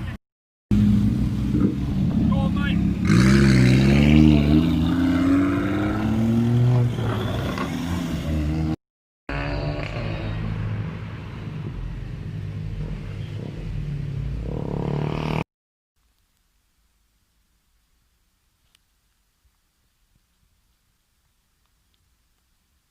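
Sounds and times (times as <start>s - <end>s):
car engine accelerating: 0.7s - 15.4s.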